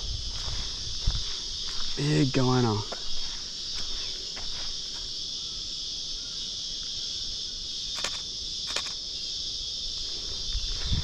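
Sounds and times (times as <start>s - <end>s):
insects buzzing: 0.0s - 11.0s
camera shutter clicks: 8.0s - 9.0s.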